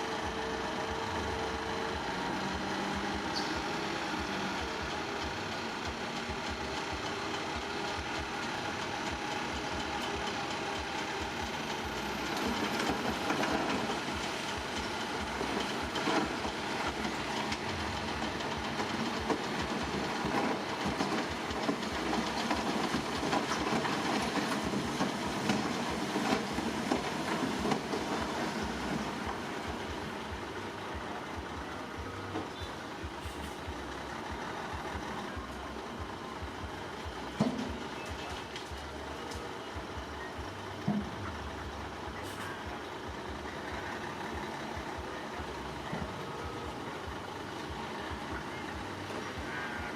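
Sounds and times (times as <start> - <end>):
heavy machinery diesel engine: 0.0 - 49.9.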